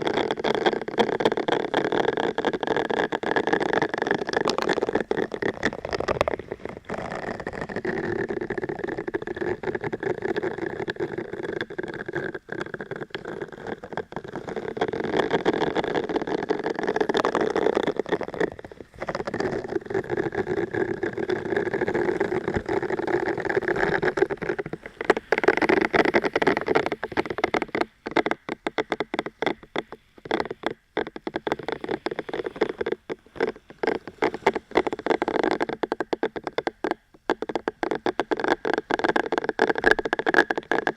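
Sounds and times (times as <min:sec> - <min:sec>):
scratching and crackling: 0:00.0 - 0:40.9
quick taps and clicks: 0:15.2 - 0:40.9.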